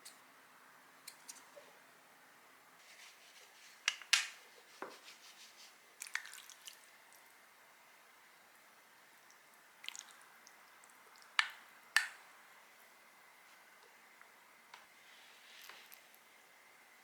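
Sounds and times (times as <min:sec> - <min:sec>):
small objects clicking and tapping: 0:11.4 - 0:12.2.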